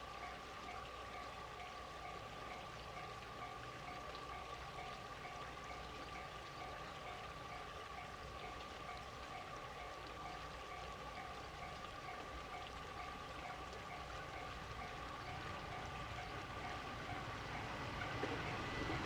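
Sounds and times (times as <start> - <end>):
level crossing warning alarm: 7.5 - 19.0.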